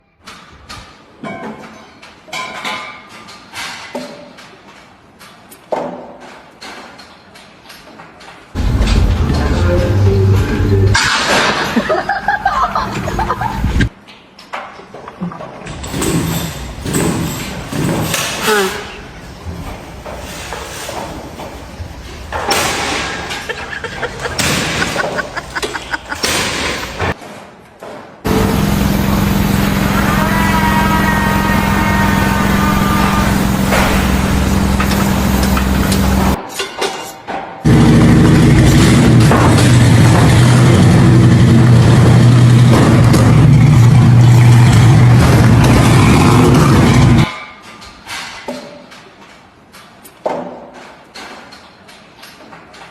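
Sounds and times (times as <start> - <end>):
construction site clatter: 0.2 - 52.9
engine running: 8.6 - 11.1, 28.3 - 36.4, 37.7 - 47.3
knocks and bangs: 19.2 - 27.2, 37.7 - 47.3.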